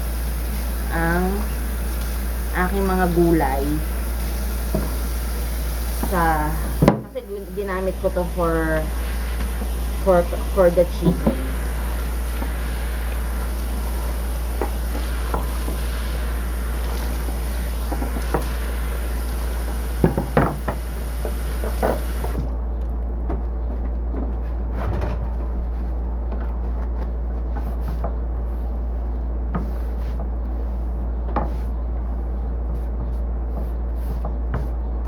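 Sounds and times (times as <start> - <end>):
high hiss: 0.0 - 22.4
steady low hum: 0.0 - 35.0.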